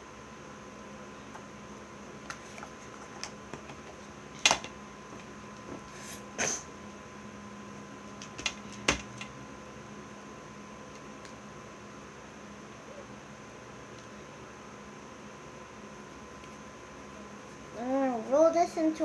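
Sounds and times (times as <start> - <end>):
faint steady hum: 0.0 - 19.0
small toys clicking on table: 8.2 - 9.3.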